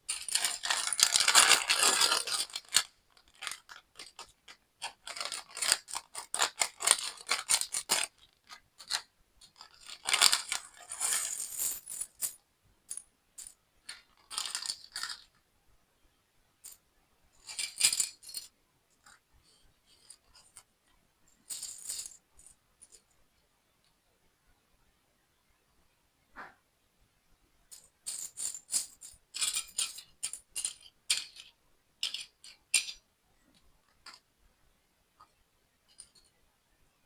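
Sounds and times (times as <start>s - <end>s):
plastic building blocks clicking: 0.1s - 10.6s, 29.4s - 33.0s.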